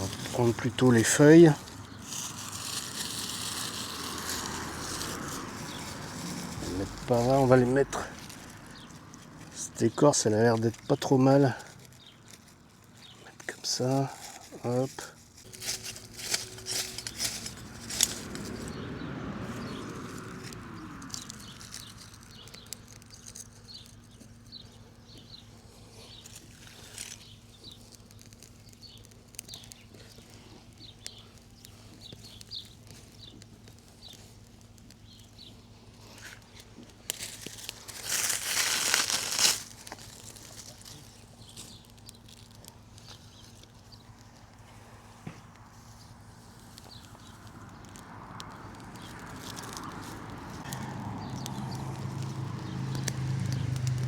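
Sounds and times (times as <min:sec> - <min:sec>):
leaves and bark rustling: 0:00.0 - 0:54.0
firesteel rasping strokes: 0:15.4 - 0:18.6.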